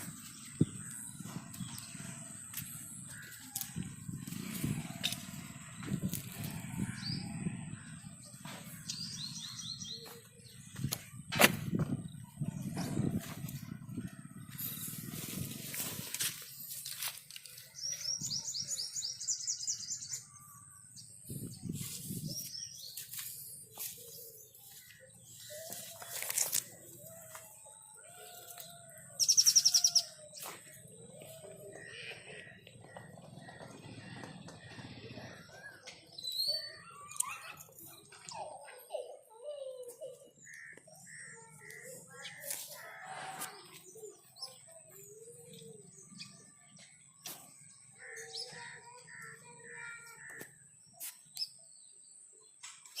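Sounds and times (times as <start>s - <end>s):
birds chirping: 0.0s - 53.0s
faint bird calls: 23.9s - 47.0s
bird trilling: 29.2s - 30.2s.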